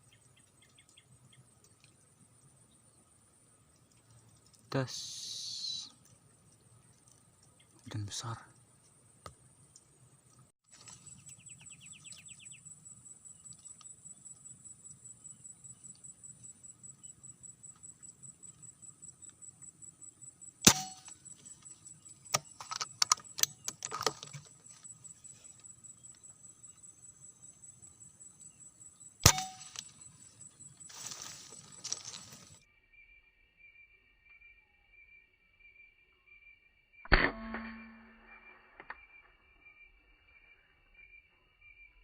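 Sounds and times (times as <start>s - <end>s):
high insect drone: 1.9s - 7.1s, 10.8s - 36.3s
air rifle shots: 20.6s - 21.2s, 29.2s - 29.8s.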